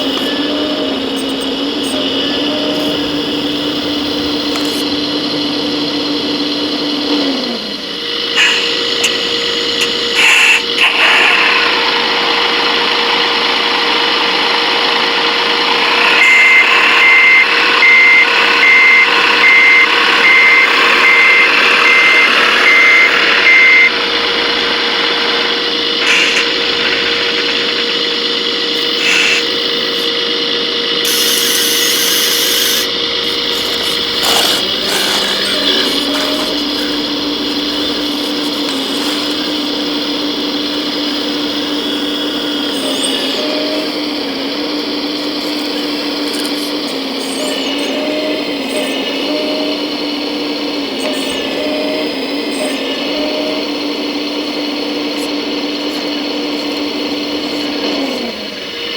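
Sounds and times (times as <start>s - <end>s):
low steady motor tone: 0.0s - 10.2s, 11.7s - 58.9s
reversing beeper: 0.0s - 46.0s
electric motors and hydraulics whining: 0.0s - 58.9s.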